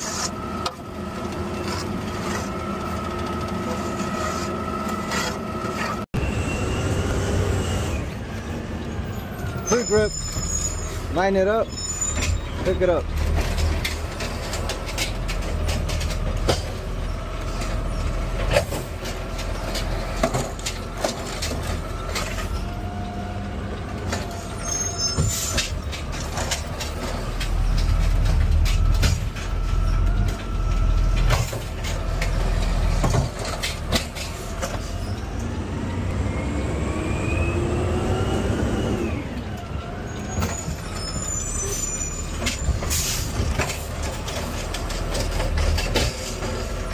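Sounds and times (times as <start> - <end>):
garbage truck engine revving: 12.3 - 46.9
cart and arm knocks and clatter: 13.1 - 22.5, 25.1 - 35.0, 42.4 - 46.9.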